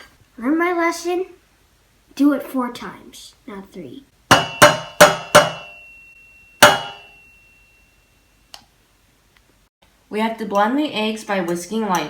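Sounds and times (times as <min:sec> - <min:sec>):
bowl ringing: 0:04.3 - 0:08.5.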